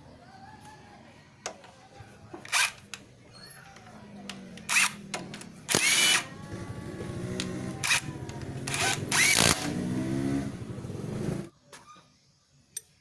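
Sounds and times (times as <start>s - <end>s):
impact driver motor whir: 4.7s - 5.0s, 5.7s - 6.3s, 7.4s - 9.8s
impact driver loud bursts: 5.7s - 6.2s, 8.6s - 9.8s.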